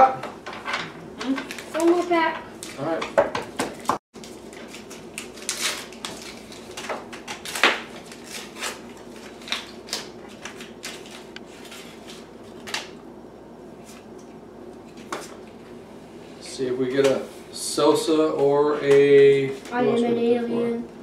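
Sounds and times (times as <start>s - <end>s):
wrapper rustling: 4.2s - 12.9s.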